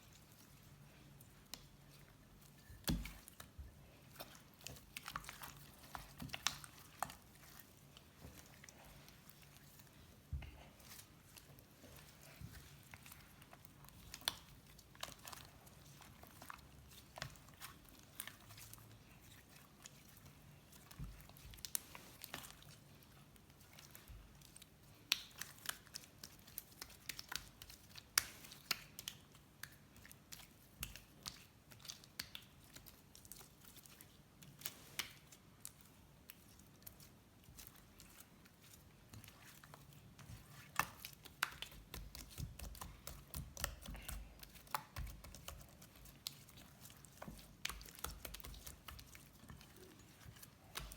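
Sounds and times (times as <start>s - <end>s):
slime sticky clicks and crackles: 24.5s - 33.8s, 39.1s - 50.9s.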